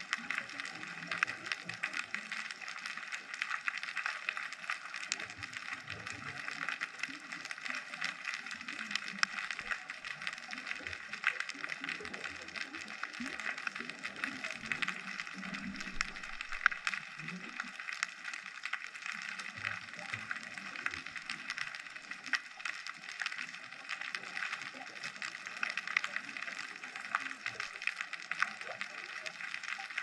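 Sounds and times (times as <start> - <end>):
underwater crackle of tiny clicks: 0.0 - 30.0
soft low rumbles: 14.4 - 17.8.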